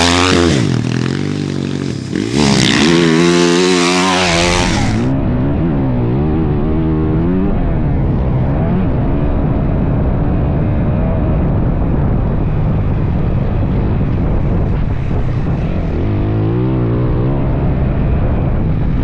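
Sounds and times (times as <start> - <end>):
dense rushing noise: 0.0 - 5.2
dirt bike engine: 0.0 - 7.4.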